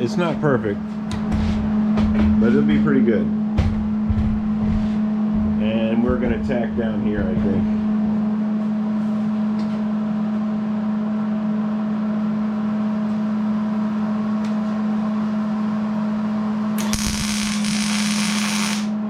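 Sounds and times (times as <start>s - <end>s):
welding arc crackling: 16.8s - 19.0s
welding machine humming: 16.8s - 19.0s.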